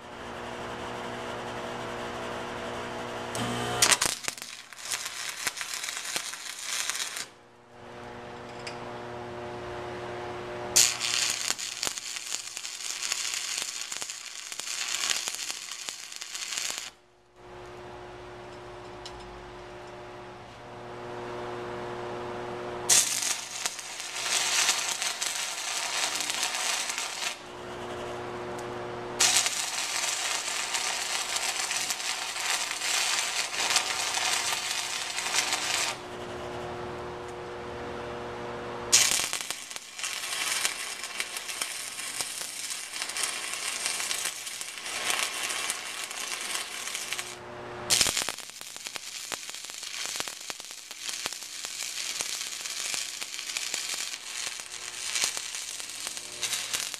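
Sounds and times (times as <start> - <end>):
welding arc crackling: 3.3 - 8.2, 10.7 - 17.0, 22.8 - 36.4, 38.9 - 56.9
steady hum: 7.3 - 12.7, 17.0 - 48.0, 54.2 - 56.9.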